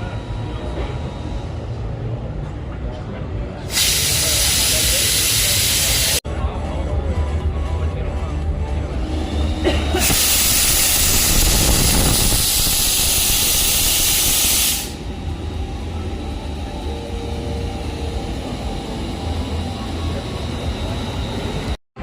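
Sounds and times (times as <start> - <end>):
loud even hiss: 3.7 - 6.2, 10.0 - 15.1
steady low rumble: 14.9 - 21.8.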